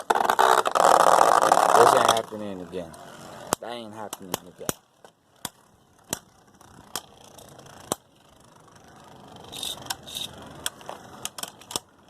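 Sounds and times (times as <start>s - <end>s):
spinning tops whirring: 5.3s - 12.0s.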